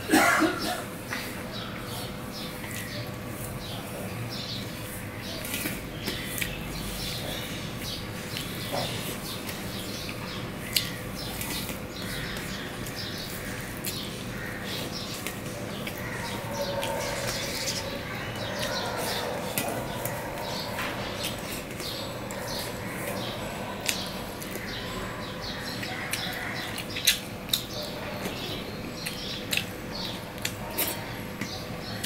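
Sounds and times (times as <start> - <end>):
chewing and lip-smacking: 8.3 - 14.1, 14.8 - 25.0, 25.6 - 31.7.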